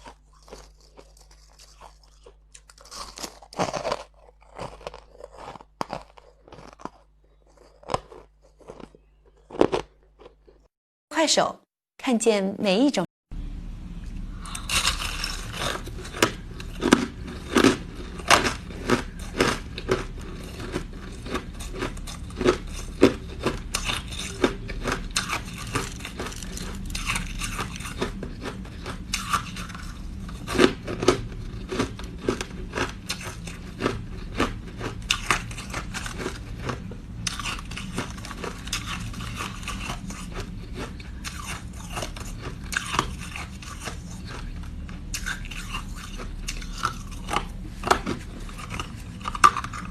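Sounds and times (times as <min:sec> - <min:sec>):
crunching ice chewing: 0:00.0 - 0:10.7, 0:14.4 - 0:49.9.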